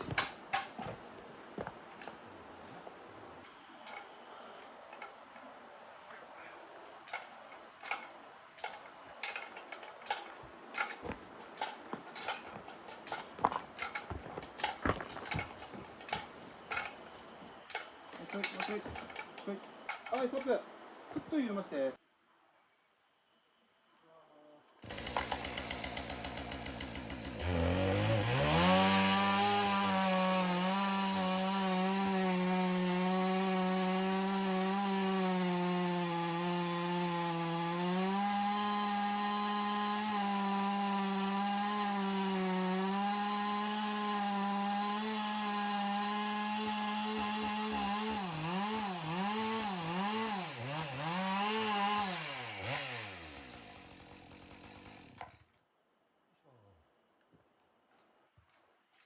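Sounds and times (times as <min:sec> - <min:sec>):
small petrol engine revving: 0:24.9 - 0:30.4, 0:48.4 - 0:55.3.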